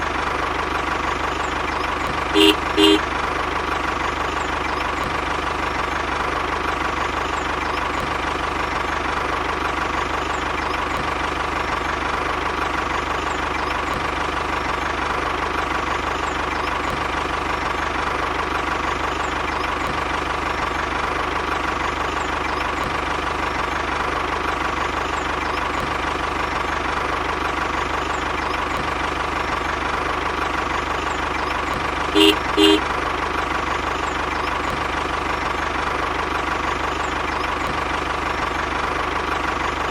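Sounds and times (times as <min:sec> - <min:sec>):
tractor engine idling: 0:00.0 - 0:39.9
short horn beeps: 0:02.4 - 0:03.1, 0:32.2 - 0:32.9.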